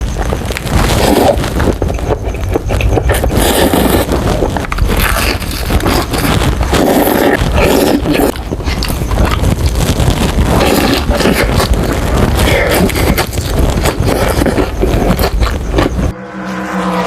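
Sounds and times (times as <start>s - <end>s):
crunching and chewing fried chicken: 0.0s - 16.1s
low rumble: 8.3s - 17.0s.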